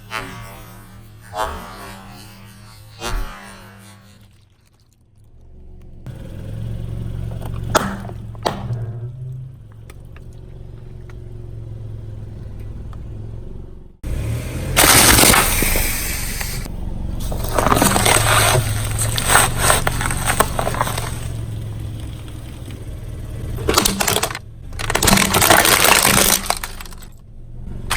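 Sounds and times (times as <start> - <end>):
car engine running low: 5.2 - 27.9
sharp cracks under a tyre: 5.8 - 13.2, 14.1 - 27.3
tyre crunching and scraping: 14.1 - 27.2.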